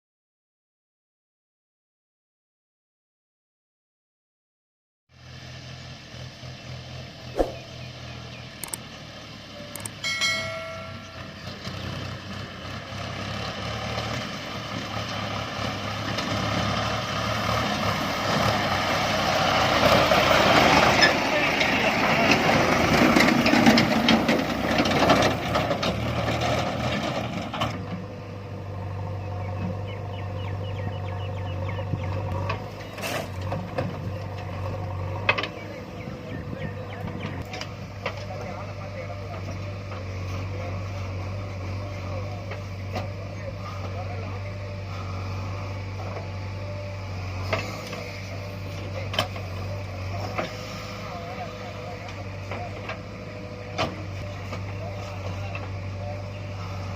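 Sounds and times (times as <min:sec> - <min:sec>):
low engine hum: 0:05.1 - 0:56.9
tractor diesel engine rattling: 0:05.7 - 0:56.9
short sharp clicks: 0:08.6 - 0:08.8, 0:09.8 - 0:10.0
faint high chirps: 0:09.8 - 0:11.6.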